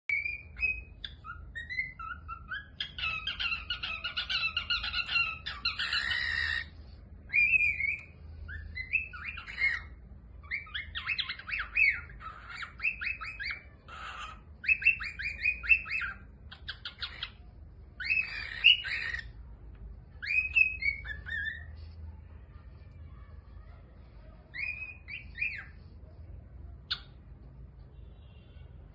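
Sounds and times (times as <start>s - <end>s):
parrot chirping and whistling: 0.1s - 6.7s, 7.3s - 17.4s, 18.0s - 19.3s, 20.1s - 21.8s, 24.5s - 25.8s
parrot chattering: 0.1s - 19.4s, 20.1s - 21.8s
parrot squawking: 0.1s - 19.4s, 20.1s - 21.8s, 24.5s - 25.8s.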